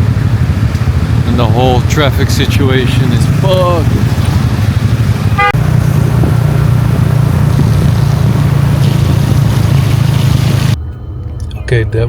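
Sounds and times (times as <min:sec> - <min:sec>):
traffic engines rumbling: 0:00.0 - 0:12.0
car horn toot: 0:05.3 - 0:05.7.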